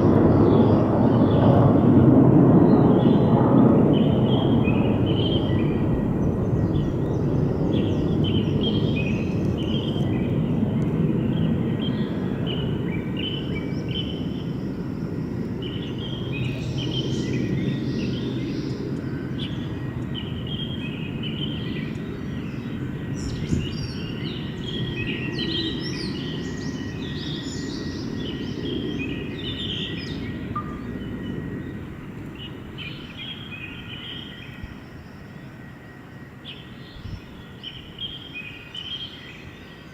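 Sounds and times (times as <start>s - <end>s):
fighter jet roar: 0.0s - 21.3s
birds chirping: 0.0s - 39.9s.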